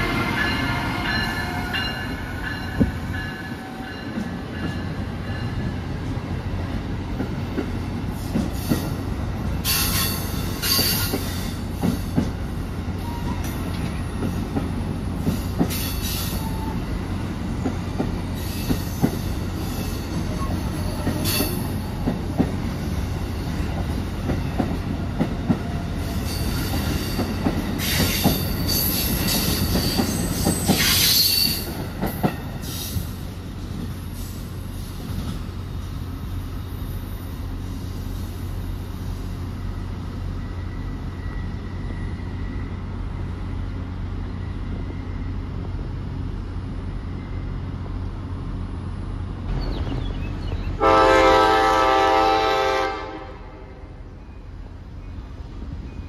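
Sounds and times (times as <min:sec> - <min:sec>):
train rumbling past: 0:00.0 - 0:56.0
high wheel squeal: 0:26.0 - 0:31.8.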